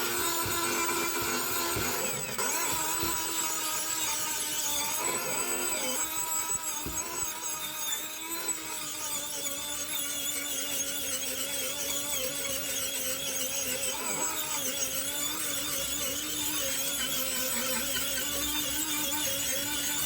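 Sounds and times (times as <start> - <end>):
power tool running on metal: 0.0 - 20.0.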